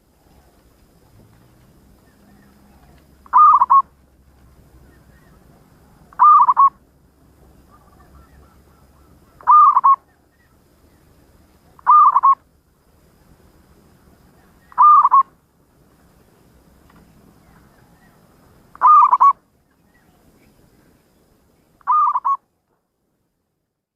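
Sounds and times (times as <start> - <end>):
dove cooing: 2.0 - 4.0, 5.0 - 6.8, 7.6 - 10.6, 11.7 - 12.4, 14.4 - 15.3, 17.5 - 19.4, 21.8 - 22.4.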